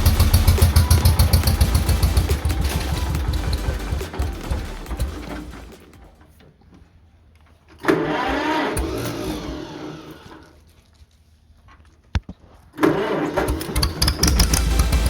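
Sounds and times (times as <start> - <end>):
tractor engine running: 0.0 - 6.2, 13.8 - 15.0.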